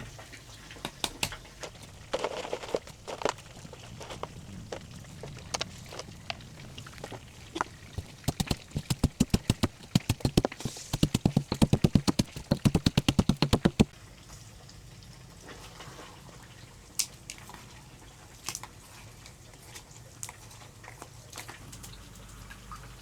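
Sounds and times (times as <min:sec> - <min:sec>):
rapid sharp knocks: 0:08.0 - 0:13.9.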